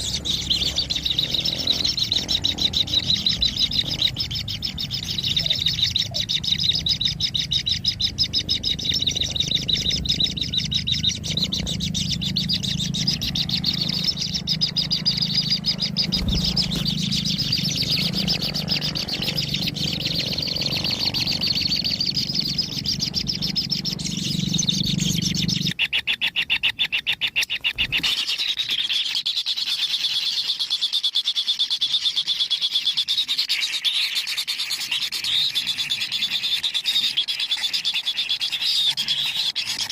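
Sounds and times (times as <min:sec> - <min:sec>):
low hum: 0:00.0 - 0:25.7
chicks chirring begging call: 0:00.0 - 0:39.9.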